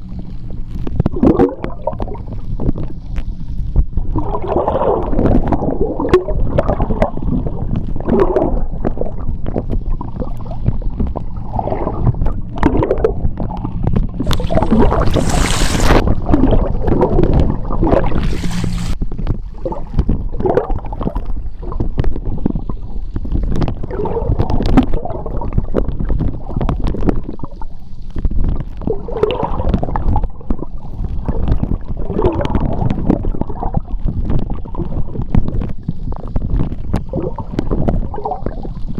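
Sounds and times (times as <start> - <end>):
underwater rumble of moving water: 0.0 - 38.9
water gurgles: 0.0 - 38.9
brief hissing bursts: 14.2 - 16.0, 18.0 - 19.0.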